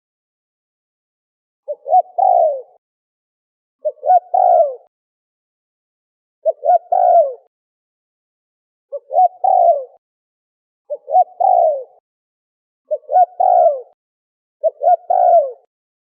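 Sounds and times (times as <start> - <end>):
dove cooing: 1.7 - 2.8, 3.8 - 4.9, 6.4 - 7.5, 8.9 - 10.0, 10.9 - 12.0, 12.9 - 14.0, 14.6 - 15.7.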